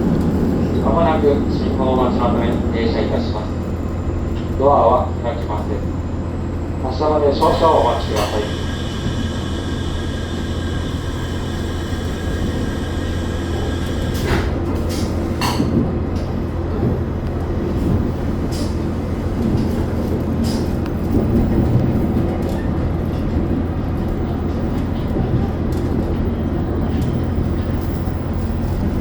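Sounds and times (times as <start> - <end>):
railcar engines idling: 0.0 - 29.0.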